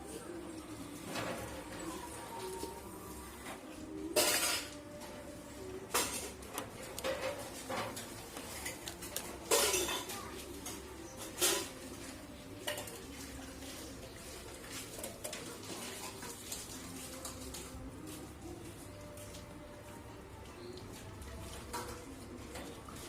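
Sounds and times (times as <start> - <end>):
hand tools clinking against metal: 8.5 - 10.1.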